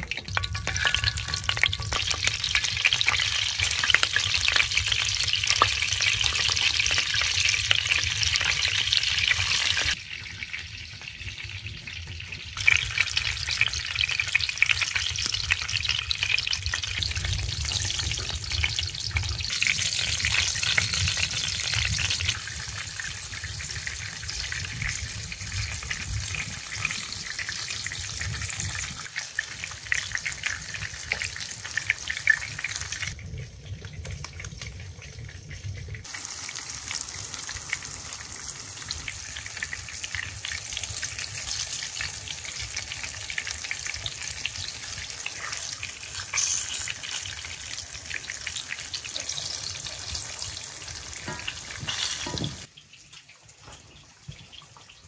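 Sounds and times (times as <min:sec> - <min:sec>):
fish frying in oil: 0:00.0 - 0:55.0.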